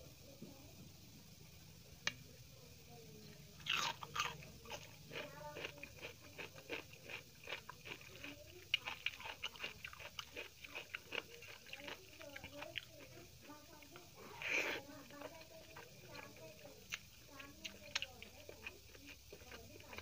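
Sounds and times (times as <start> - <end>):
crisp crunching bites: 3.6 - 12.0
crunchy chewing with wet mouth sounds: 3.6 - 20.0.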